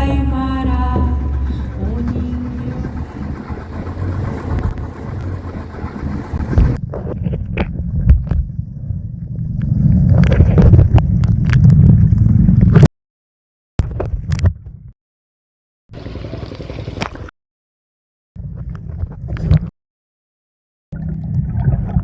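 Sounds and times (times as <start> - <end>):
boat engine running: 0.0 - 6.9
wind rumble on microphone: 0.0 - 12.9.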